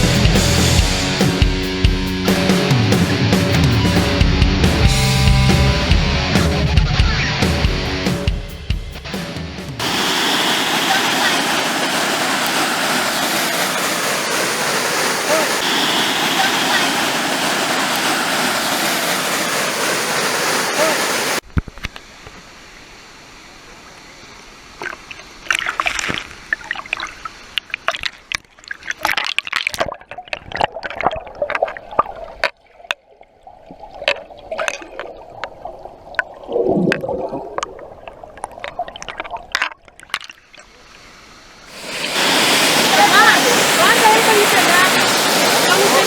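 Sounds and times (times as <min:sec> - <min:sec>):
water splashing and gurgling: 0:09.8 - 0:21.4, 0:24.7 - 0:46.0
faint waterfall rush: 0:09.8 - 0:25.5, 0:40.7 - 0:46.0.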